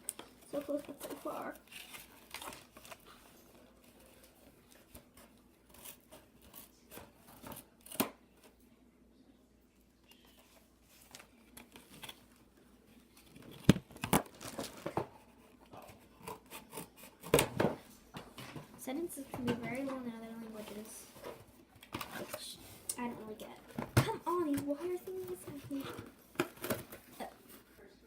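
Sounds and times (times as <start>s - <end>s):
plastic packaging crinkling: 13.0s - 15.2s.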